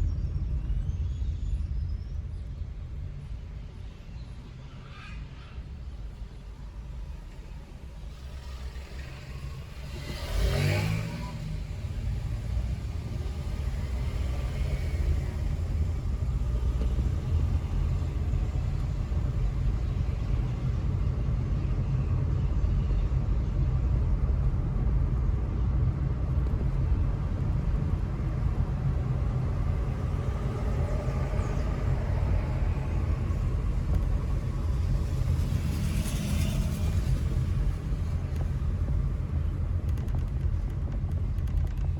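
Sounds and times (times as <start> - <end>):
car engine and tyres rumbling: 0.0 - 41.9
vehicle whooshing past: 8.2 - 18.8.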